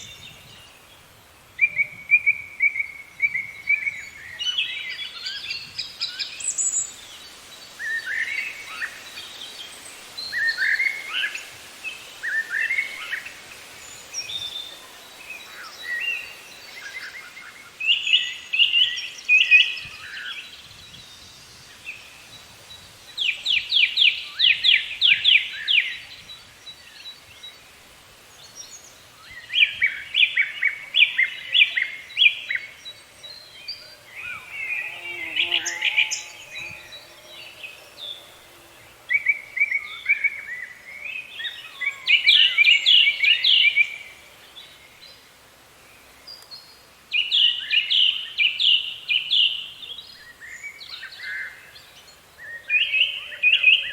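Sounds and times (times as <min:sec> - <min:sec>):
birds singing and calling: 0:28.3 - 0:45.3.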